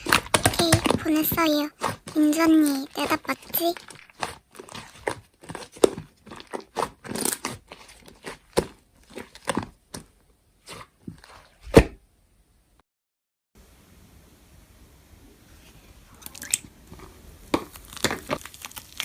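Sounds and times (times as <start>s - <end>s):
slime crackling and squelching: 0.0s - 11.7s, 16.2s - 19.0s.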